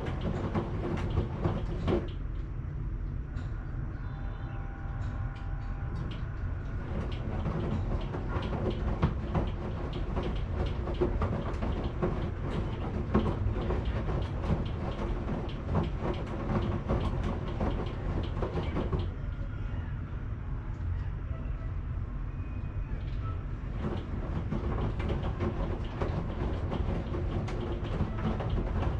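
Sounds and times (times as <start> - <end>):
knocking clatter: 0.0 - 2.2, 6.0 - 19.2, 23.0 - 28.9
washing machine rumbling: 0.0 - 20.3, 22.6 - 28.9.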